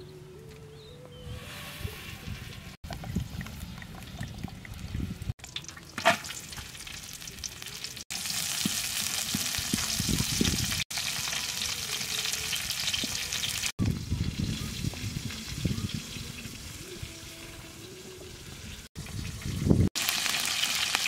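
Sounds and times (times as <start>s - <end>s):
food sizzling in a wok: 6.2s - 17.2s, 17.9s - 21.0s.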